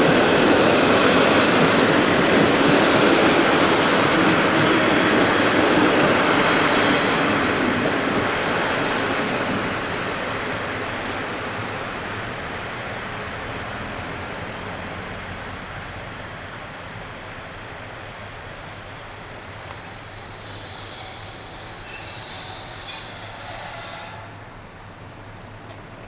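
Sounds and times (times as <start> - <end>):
train wheels rumbling on rail: 0.0 - 26.0
high wheel squeal: 18.7 - 25.0.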